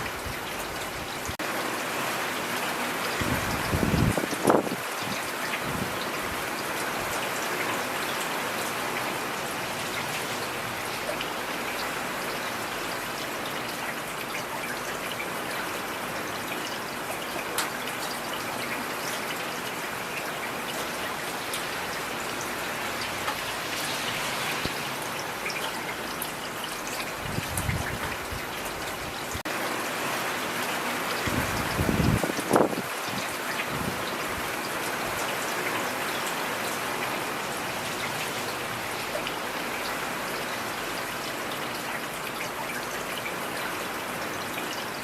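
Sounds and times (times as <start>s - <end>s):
rain hissing: 20.0s - 33.1s.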